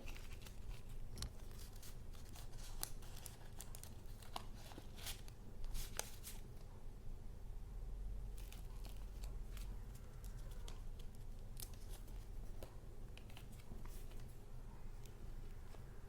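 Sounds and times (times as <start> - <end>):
paper clicks and rustles: 0.0 - 6.7, 8.3 - 14.4
low steady hum: 0.0 - 16.0.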